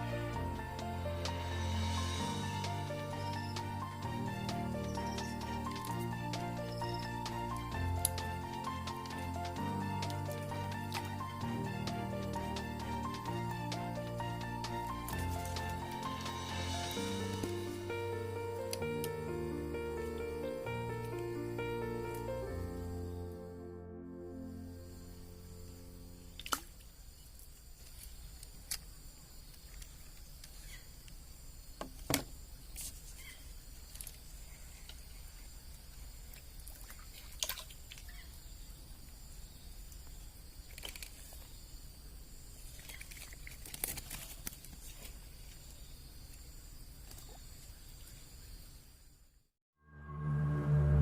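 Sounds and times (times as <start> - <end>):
high-pitched hum: 49.8 - 51.0.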